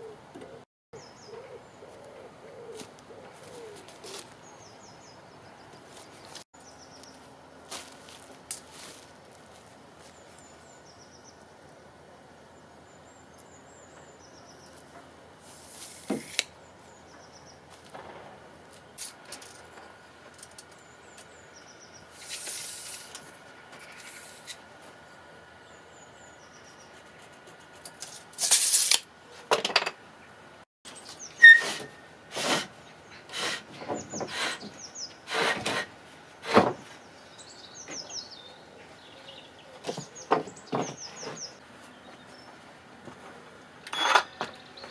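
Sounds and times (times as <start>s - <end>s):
sharp knocks and scrapes: 15.5s - 16.5s, 31.4s - 32.7s, 33.3s - 37.0s.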